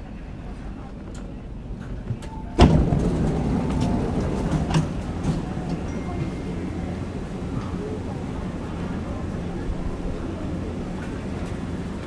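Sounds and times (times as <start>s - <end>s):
electric train running noise: 0.4s - 12.0s.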